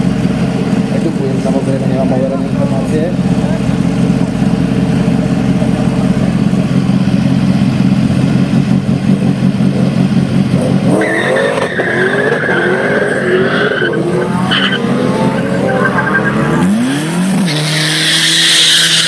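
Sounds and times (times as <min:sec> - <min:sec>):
drag car engines rumbling: 0:00.0 - 0:19.0
high tyre squeal: 0:11.0 - 0:19.0.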